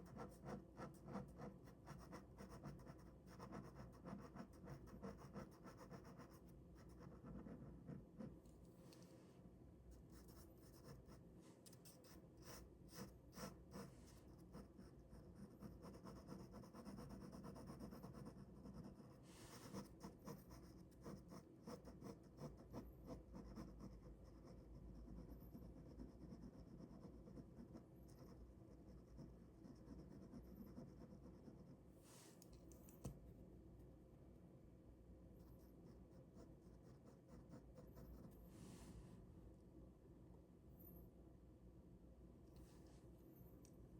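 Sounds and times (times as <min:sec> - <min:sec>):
ballpoint pen scratching on paper: 0:00.0 - 0:08.4, 0:10.2 - 0:11.2, 0:11.8 - 0:31.8.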